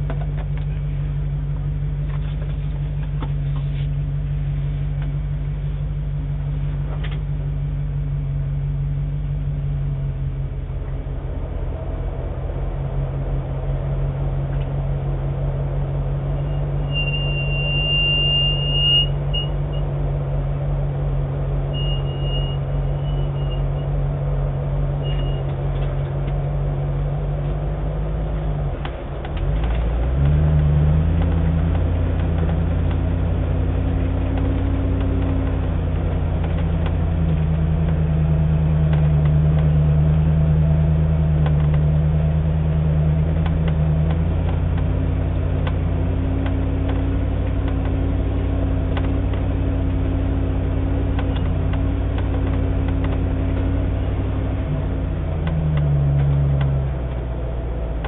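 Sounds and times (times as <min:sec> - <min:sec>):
car engine running: 0:00.0 - 0:58.0
short high squeal: 0:16.4 - 0:19.8, 0:21.7 - 0:23.9, 0:25.0 - 0:25.5.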